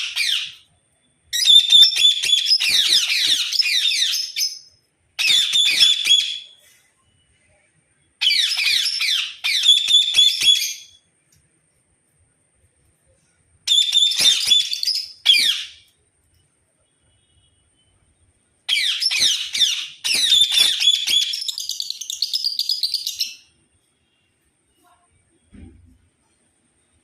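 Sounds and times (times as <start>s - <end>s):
bird chirping and twittering: 1.3s - 6.6s, 8.2s - 11.0s, 13.7s - 15.9s, 18.7s - 23.5s.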